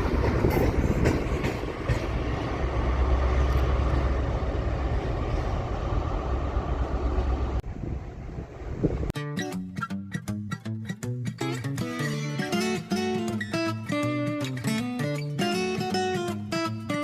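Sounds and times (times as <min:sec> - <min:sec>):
train rumbling on rails: 0:00.0 - 0:09.1.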